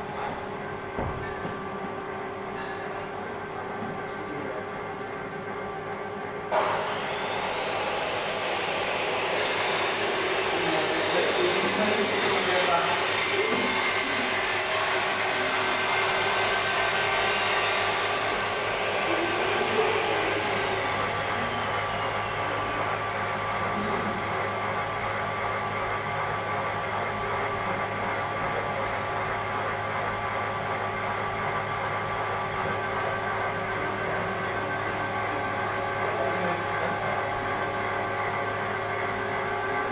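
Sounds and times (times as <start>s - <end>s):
steady machine hum: 0.0s - 39.9s
loud machine hiss: 6.6s - 21.7s.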